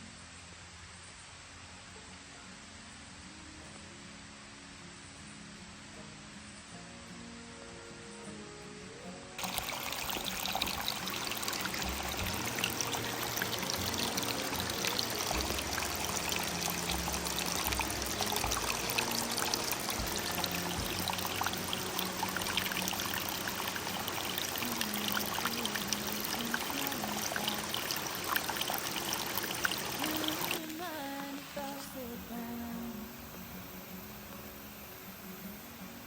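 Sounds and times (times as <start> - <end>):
stream trickling and splashing: 9.4 - 32.5.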